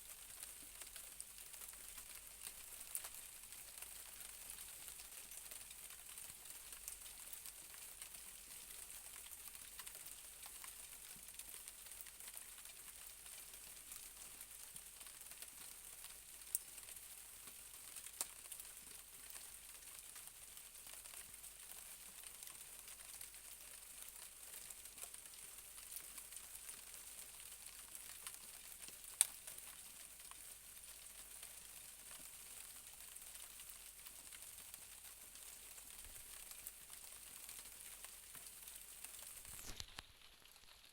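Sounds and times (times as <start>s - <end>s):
light rain hissing: 18.0s - 40.9s.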